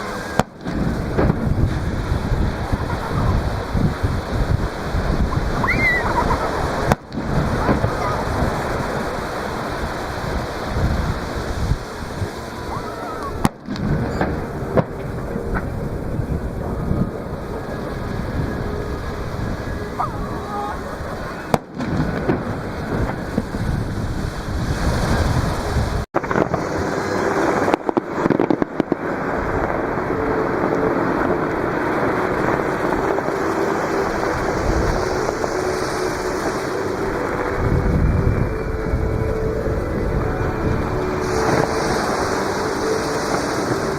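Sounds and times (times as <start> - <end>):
fireworks booming: 0.0 - 12.4, 13.2 - 43.9
surf breaking on beach: 0.0 - 43.9
wind noise: 0.0 - 43.9
sharp firework cracks: 26.2 - 36.8.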